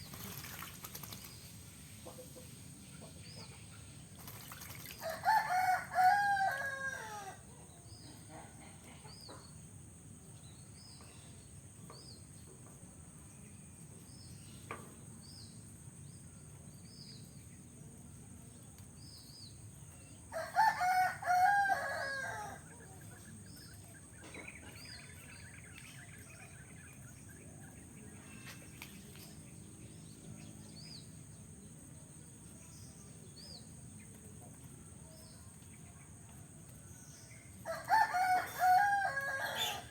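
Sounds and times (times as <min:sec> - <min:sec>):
rooster crowing: 0:05.0 - 0:07.4, 0:20.3 - 0:22.6, 0:37.6 - 0:39.9
small bird chirping: 0:22.8 - 0:31.5.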